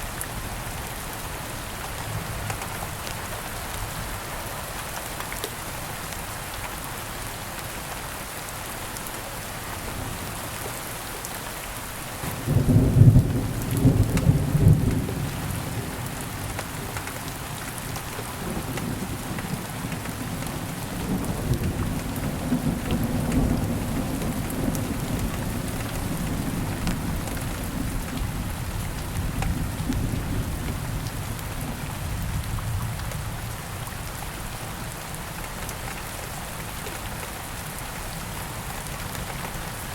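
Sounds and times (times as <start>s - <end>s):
steady rain falling: 0.0s - 39.9s
thunder clap and rumble: 12.2s - 16.5s.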